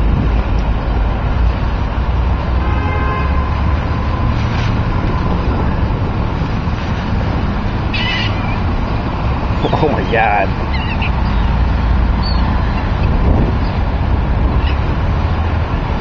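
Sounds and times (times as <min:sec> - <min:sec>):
water birds calling: 0:03.5 - 0:15.6
steady low rumble: 0:03.5 - 0:16.0.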